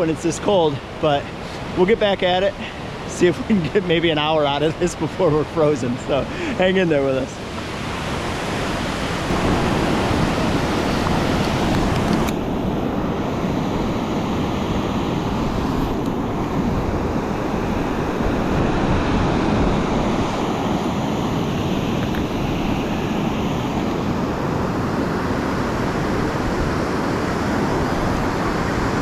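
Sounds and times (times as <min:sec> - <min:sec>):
rushing creek water: 0:00.0 - 0:29.0
wind buffeting microphone: 0:07.5 - 0:29.0.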